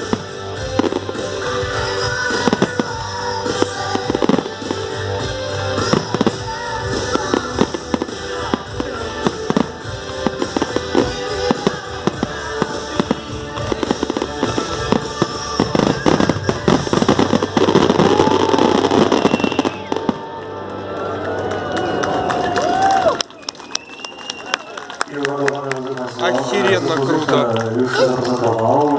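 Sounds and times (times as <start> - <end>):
fireworks bangs and crackles: 0.0 - 20.4
music: 0.0 - 25.1, 25.8 - 28.9.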